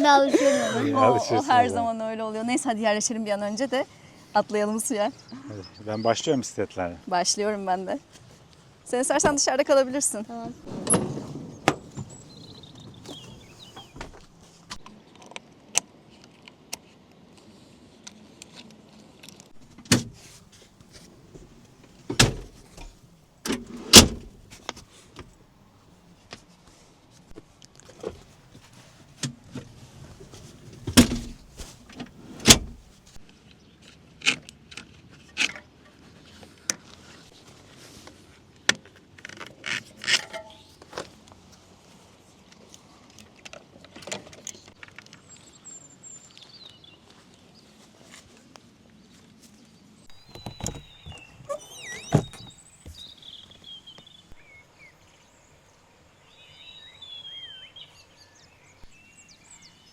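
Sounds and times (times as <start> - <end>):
heavy thuds: 30.3 - 33.0, 50.1 - 53.0
metallic clanks and rattles: 30.3 - 33.0.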